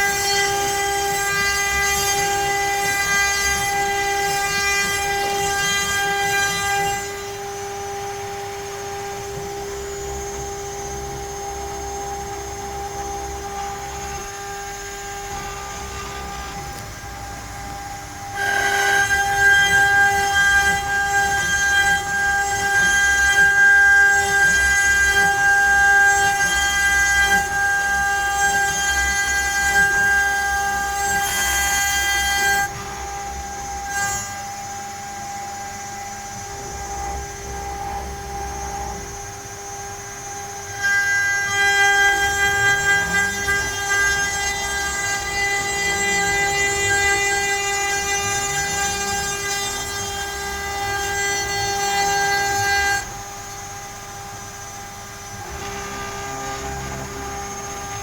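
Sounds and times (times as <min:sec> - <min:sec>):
router spindle high whine: 0:00.0 - 0:58.0
motors whining up and down: 0:52.4 - 0:58.0.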